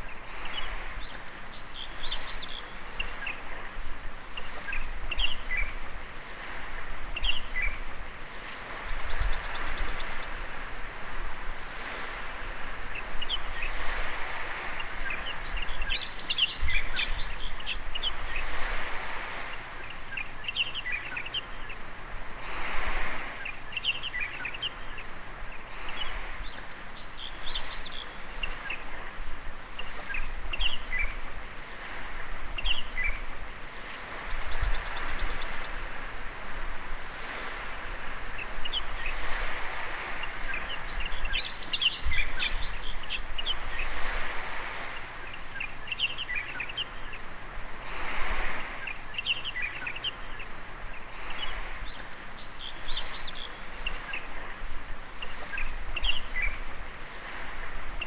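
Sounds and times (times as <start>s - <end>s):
small waves washing on beach: 0.0s - 58.0s
birds chirping and calling: 45.0s - 47.2s, 51.2s - 54.5s.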